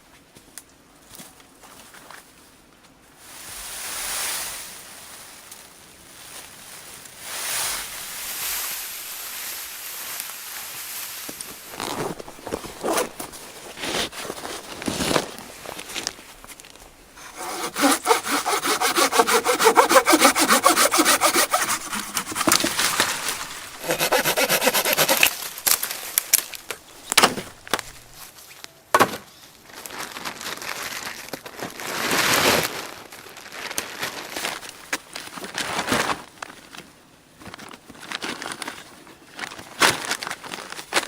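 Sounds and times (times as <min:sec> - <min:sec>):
hand saw cutting wood: 0:11.7 - 0:14.8, 0:17.2 - 0:26.5.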